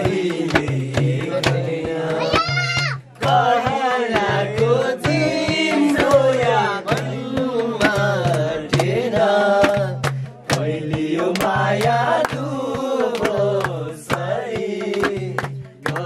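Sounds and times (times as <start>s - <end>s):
person singing: 0.0s - 9.8s
hand drum beating: 0.0s - 16.0s.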